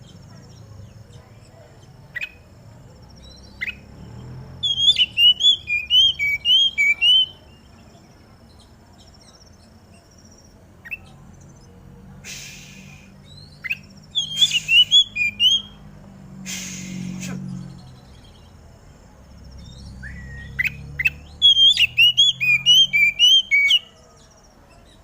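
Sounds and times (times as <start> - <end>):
bird whistled notes: 4.6 - 7.4, 12.3 - 15.8, 19.6 - 23.9
short hissy noises: 16.4 - 17.4.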